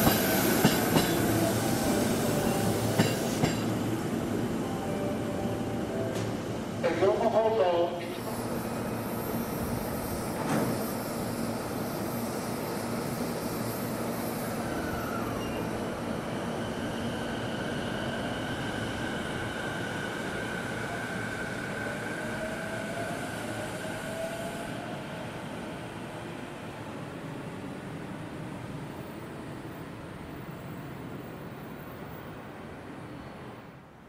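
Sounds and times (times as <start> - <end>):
train wheels rumbling on rail: 0.0 - 4.6, 8.1 - 29.5
high wheel squeal: 8.2 - 15.9.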